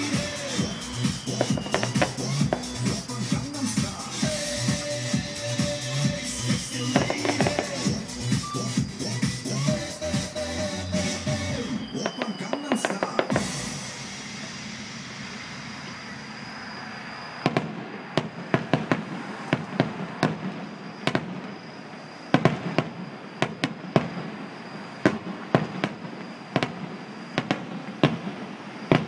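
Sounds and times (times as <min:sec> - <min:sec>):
fireworks popping and cracking: 0:00.0 - 0:16.0, 0:17.4 - 0:29.0
steady background hiss: 0:11.2 - 0:29.0.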